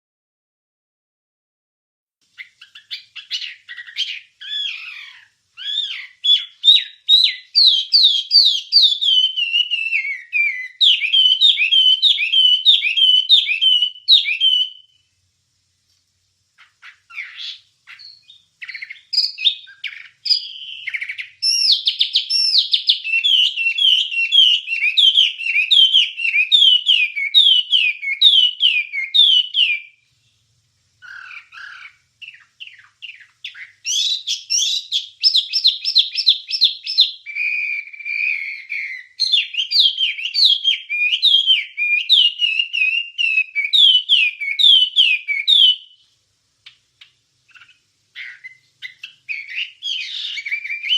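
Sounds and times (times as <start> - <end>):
bird singing chirping notes: 2.4 - 15.2, 16.6 - 46.1, 47.5 - 50.9.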